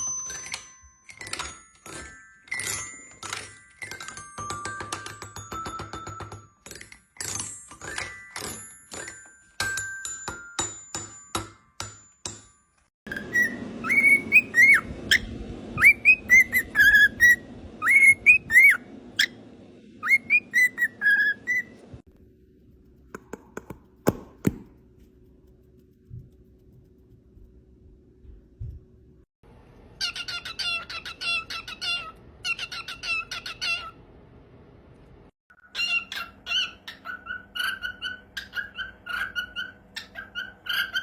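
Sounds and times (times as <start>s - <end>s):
sharp taps with ringing tones: 4.0s - 6.9s, 8.0s - 12.8s
parrot whistling a tune: 13.1s - 19.4s, 20.0s - 21.8s, 35.7s - 41.0s.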